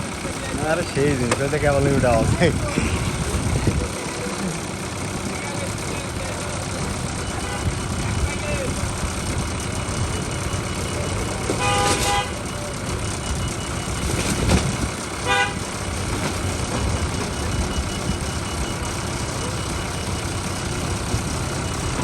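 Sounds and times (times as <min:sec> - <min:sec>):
vehicle engine noise: 0:00.0 - 0:22.0
vehicle horn tooting: 0:07.3 - 0:07.8, 0:11.4 - 0:12.7, 0:15.2 - 0:15.8.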